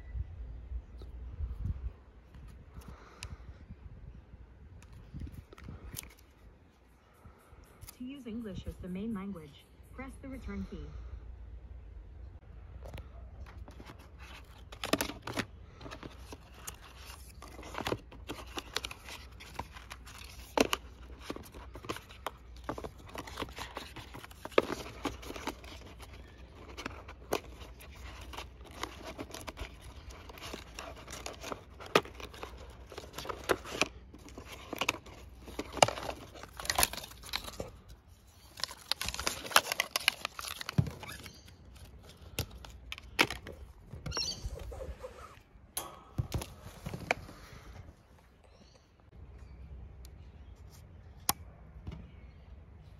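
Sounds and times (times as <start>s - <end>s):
paper packaging crinkling and tearing: 13.5s - 44.8s.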